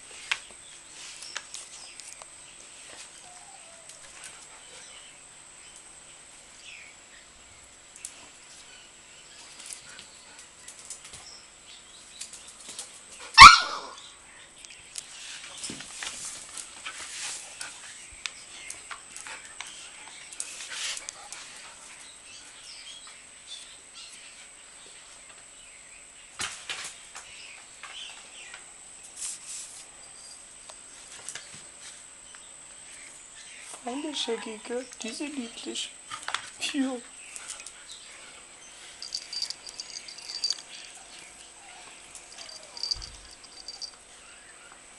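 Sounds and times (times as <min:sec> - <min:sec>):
dog barking: 0:13.4 - 0:14.0
faint scuffling noises: 0:15.0 - 0:22.0.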